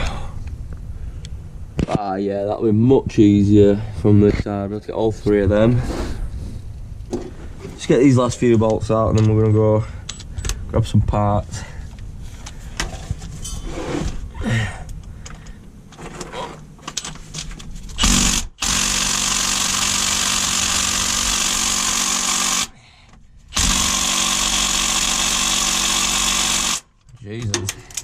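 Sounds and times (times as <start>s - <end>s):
impact gun running: 18.0s - 22.7s, 23.5s - 26.8s.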